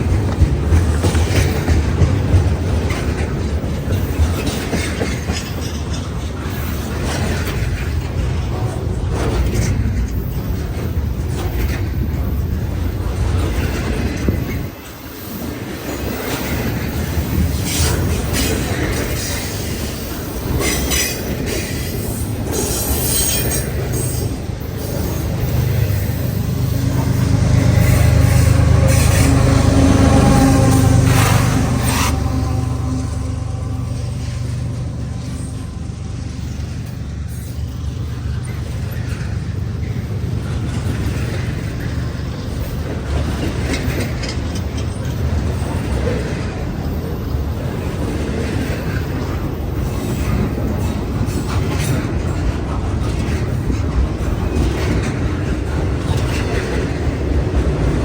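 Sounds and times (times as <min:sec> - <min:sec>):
diesel locomotive drone: 0:00.0 - 0:58.0
freight train rumbling: 0:00.0 - 0:58.0
wheel squeal: 0:15.0 - 0:29.6.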